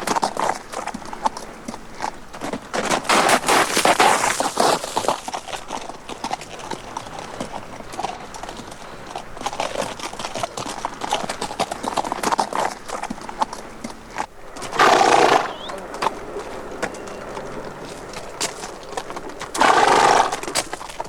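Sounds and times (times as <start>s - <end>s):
horse hooves clip-clopping: 0.0s - 21.0s.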